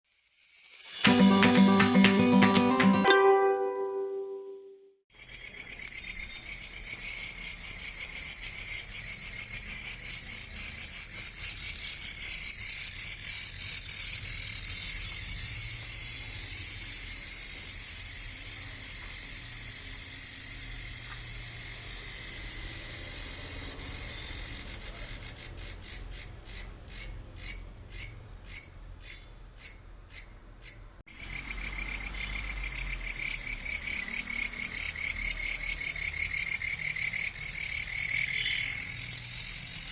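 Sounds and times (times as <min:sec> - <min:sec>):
cricket chirping: 0:30.7 - 0:39.9.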